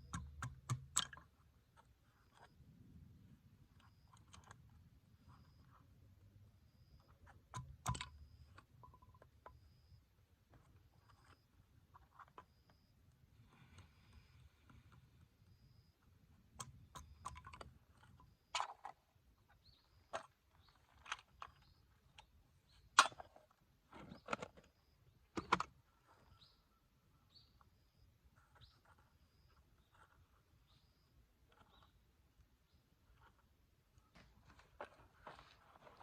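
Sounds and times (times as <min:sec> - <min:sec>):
sharp clicks and knocks: 0:00.0 - 0:02.5, 0:07.0 - 0:09.8.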